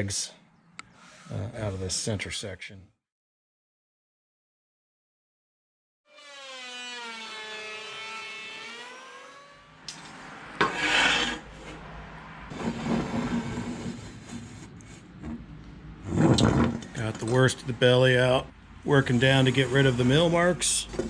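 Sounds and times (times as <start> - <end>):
tool rasping across wood: 10.6 - 11.8, 12.5 - 15.4, 19.0 - 21.0.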